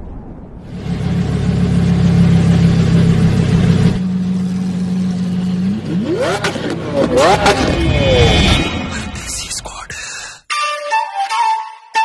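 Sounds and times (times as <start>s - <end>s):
vehicle engine humming and revving: 0.7s - 9.2s.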